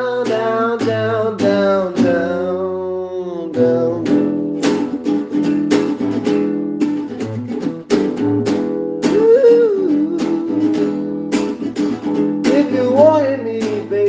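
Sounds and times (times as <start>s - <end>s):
person singing ooh: 0.0s - 4.4s, 9.0s - 11.4s, 12.5s - 14.0s
acoustic guitar strumming: 0.0s - 14.0s.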